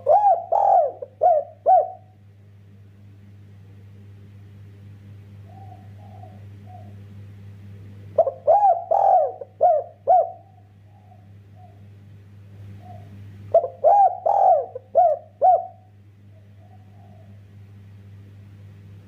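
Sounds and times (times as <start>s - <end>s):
dove cooing: 0.0s - 2.2s, 5.4s - 7.1s, 8.1s - 11.9s, 12.7s - 17.6s
steady low hum: 0.0s - 19.0s.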